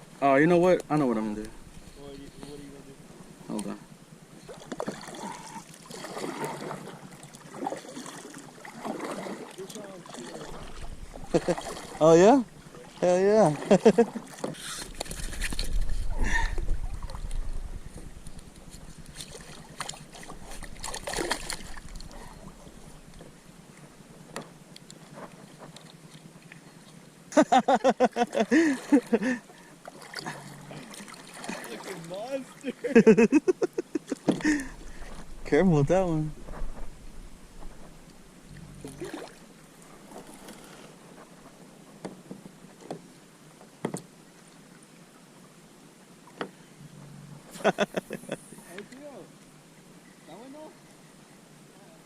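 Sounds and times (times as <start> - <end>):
faint steady hiss: 0.0 - 6.0, 6.6 - 52.0
water noise: 0.0 - 52.0
rustling: 14.4 - 23.4, 36.3 - 38.8
knocks against boat: 42.0 - 43.0, 43.8 - 44.1.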